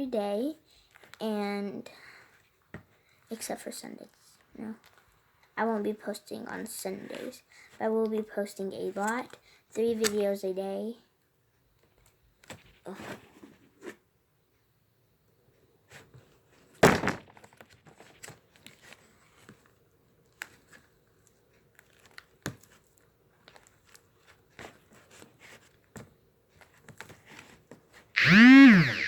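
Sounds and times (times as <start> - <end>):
loud knock: 16.8 - 17.3
rising and falling pitched sound: 28.2 - 29.0.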